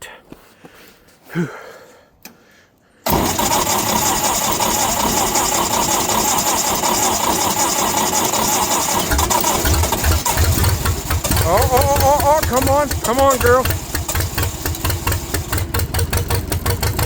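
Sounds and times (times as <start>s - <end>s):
engine cranked by starter: 3.0s - 17.0s.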